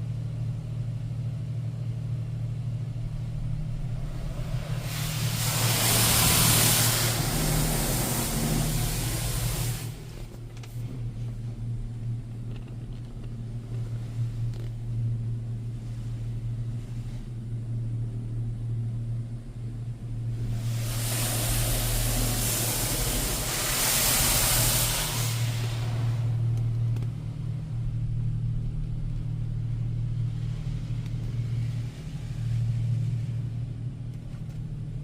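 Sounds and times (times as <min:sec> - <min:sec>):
steady low hum: 0:00.0 - 0:35.0
water jets spraying a car: 0:03.7 - 0:10.4, 0:20.4 - 0:26.5.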